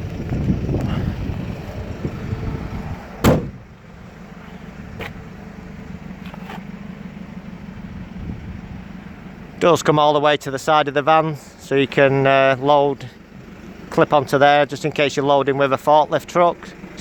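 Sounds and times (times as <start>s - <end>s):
wind: 0.0s - 17.0s
van rear door banging shut: 3.2s - 3.7s
handling noise: 6.2s - 6.8s.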